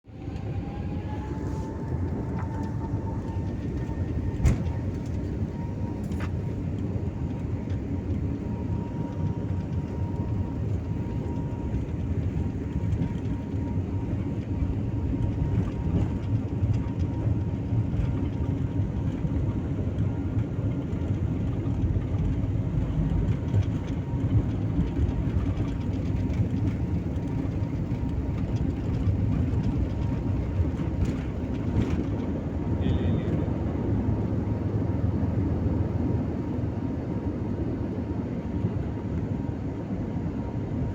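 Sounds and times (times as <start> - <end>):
jet engine whine: 0.0 - 40.9
jet engines rumbling: 0.1 - 40.9.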